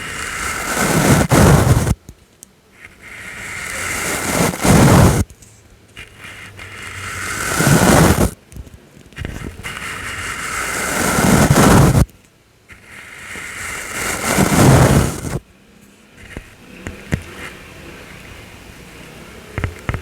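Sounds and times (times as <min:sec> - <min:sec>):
brush sweeping across microphone: 0:00.0 - 0:02.0, 0:02.8 - 0:05.2, 0:06.0 - 0:08.4, 0:09.4 - 0:12.1, 0:12.7 - 0:15.4.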